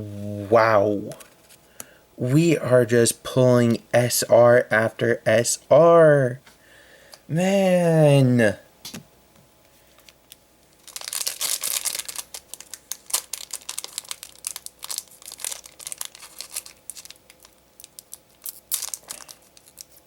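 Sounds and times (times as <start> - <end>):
foil wrapper tearing and crinkling: 10.8 - 20.0.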